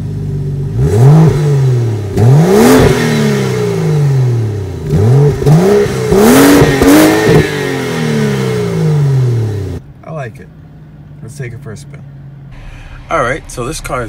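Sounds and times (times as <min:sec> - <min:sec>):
car engine revving: 0:00.3 - 0:09.9, 0:12.0 - 0:14.0.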